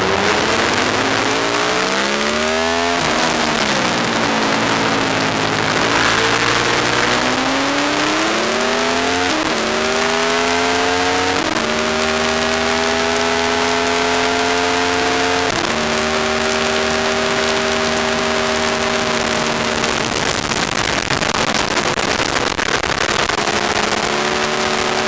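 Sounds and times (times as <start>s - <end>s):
wind rush over microphone: 0.0s - 8.5s
motorcycle engine revving: 0.0s - 25.0s.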